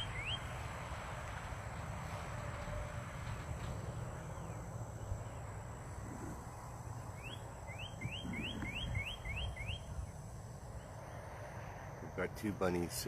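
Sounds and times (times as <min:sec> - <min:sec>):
bird calling rising notes: 0:00.0 - 0:00.5, 0:07.1 - 0:10.1
low outdoor rumble: 0:00.0 - 0:13.0.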